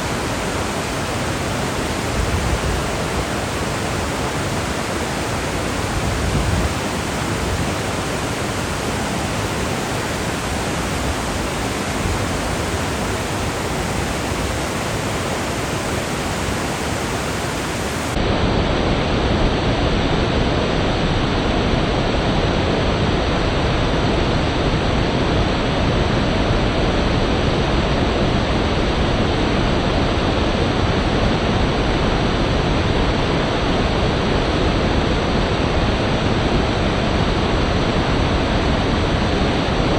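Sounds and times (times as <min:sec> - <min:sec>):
rushing river water: 0:00.0 - 0:18.2.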